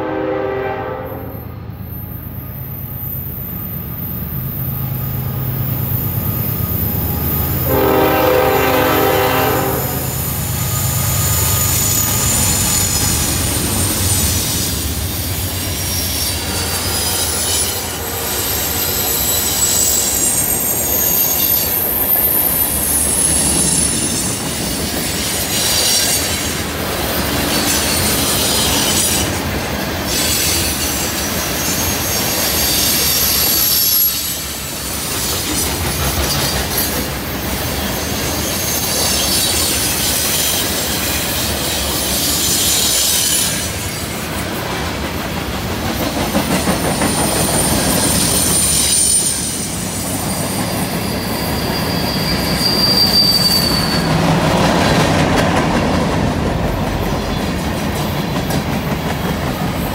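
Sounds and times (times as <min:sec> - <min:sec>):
train horn blasts: 0:00.0 - 0:01.6, 0:07.0 - 0:13.3
wheel squeal on curve: 0:09.6 - 0:24.4, 0:30.1 - 0:35.7, 0:37.8 - 0:44.0, 0:47.0 - 0:54.4.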